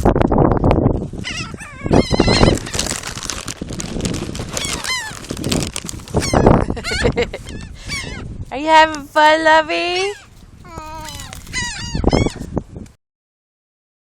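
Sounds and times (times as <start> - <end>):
seagulls calling: 1.3 - 3.6, 4.4 - 8.4, 11.0 - 12.5.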